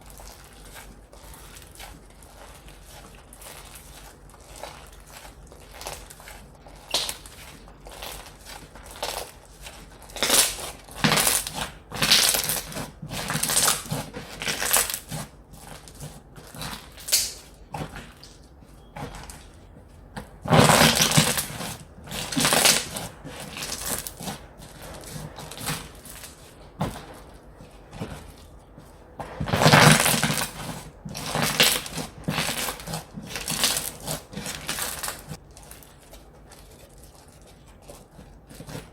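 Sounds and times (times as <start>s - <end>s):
slime squishing and crackling: 0.0s - 38.9s.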